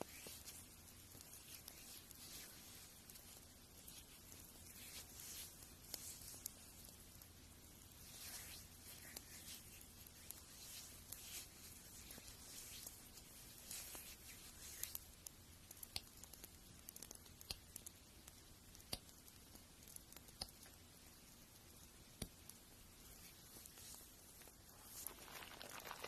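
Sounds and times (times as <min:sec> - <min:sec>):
small sharp clicks and taps: 0:12.0 - 0:26.0.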